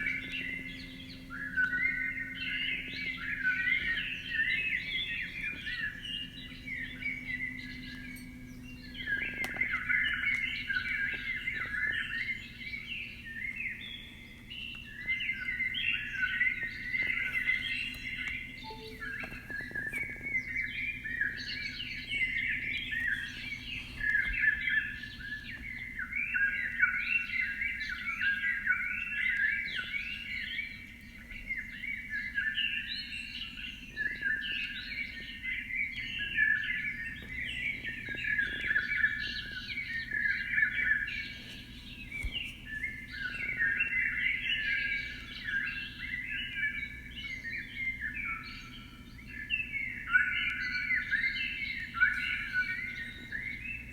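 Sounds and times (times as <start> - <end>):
faint steady low hum: 0.0 - 53.9
small birds chirping: 0.0 - 53.9.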